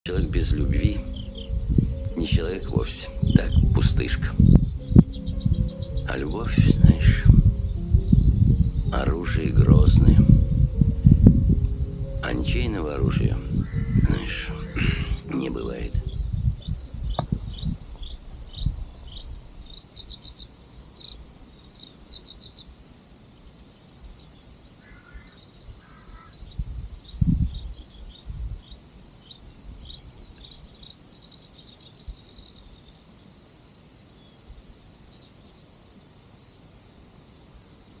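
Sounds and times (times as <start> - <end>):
low rumbles: 0.0 - 19.8
small birds chirping: 0.0 - 38.0.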